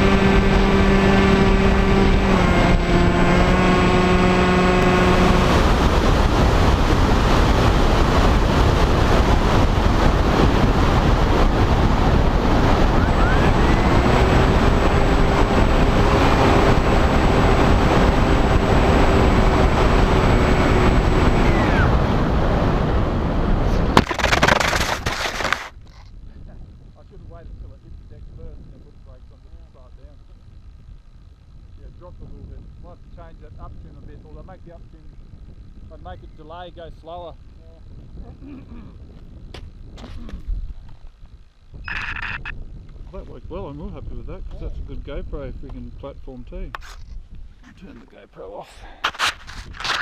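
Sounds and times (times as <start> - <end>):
electric motor and propeller whine: 0.0 - 25.8.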